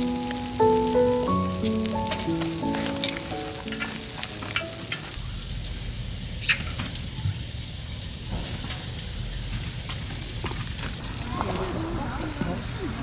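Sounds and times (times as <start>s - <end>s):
background music: 0.0s - 5.2s
sharp crackles: 0.0s - 12.6s
food frying and sizzling: 0.0s - 13.0s.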